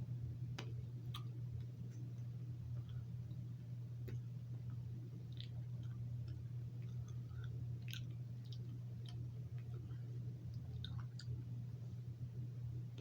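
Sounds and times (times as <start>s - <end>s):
steady low hum: 0.0s - 13.0s
mouth smacks eating: 1.1s - 1.3s.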